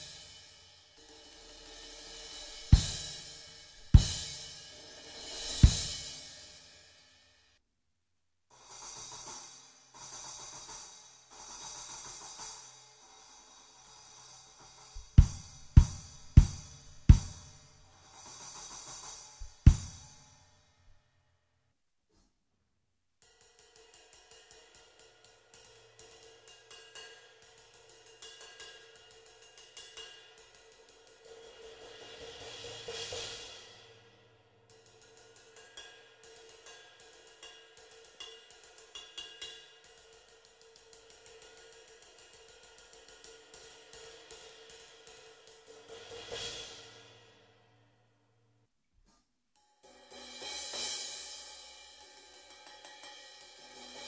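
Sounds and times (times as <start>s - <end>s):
stick strokes on cymbal: 0.0s - 7.4s, 8.5s - 20.5s, 23.2s - 47.6s, 49.6s - 54.0s
bass drum hits: 15.0s - 17.4s.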